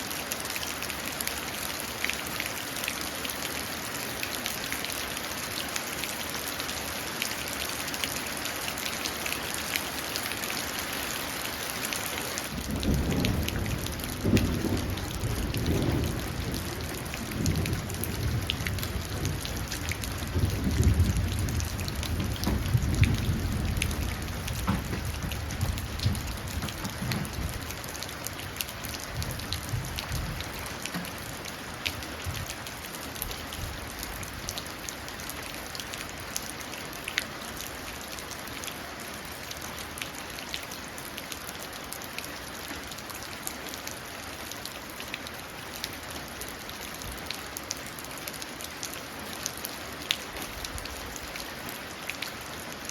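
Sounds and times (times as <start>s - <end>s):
rain splashing into puddle: 0.0s - 52.9s
rolling thunder: 12.5s - 27.9s, 28.9s - 30.5s.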